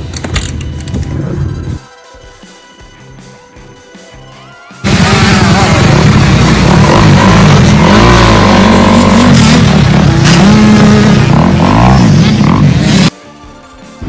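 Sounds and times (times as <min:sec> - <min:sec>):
off-road vehicle engine revving: 0:04.8 - 0:13.1.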